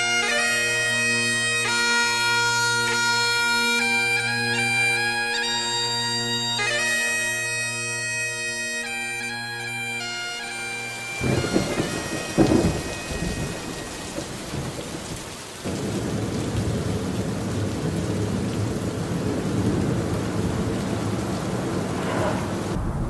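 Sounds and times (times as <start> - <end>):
rain hitting car windscreen: 11.2 - 23.0
thunder rumbling: 11.2 - 23.0.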